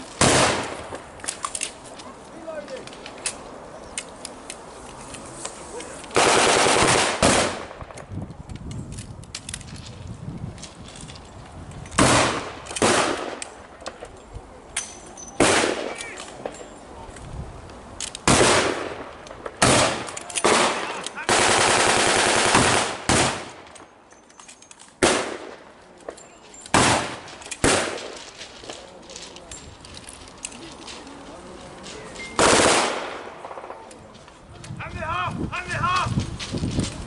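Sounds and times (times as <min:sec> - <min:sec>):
blank gunshots: 0:00.2 - 0:00.9, 0:06.2 - 0:07.9, 0:12.0 - 0:13.4, 0:15.4 - 0:16.2, 0:18.2 - 0:23.6, 0:25.0 - 0:25.6, 0:26.7 - 0:28.2, 0:32.4 - 0:33.9
automatic gunfire burst: 0:06.2 - 0:07.7, 0:19.6 - 0:23.5, 0:32.4 - 0:33.7.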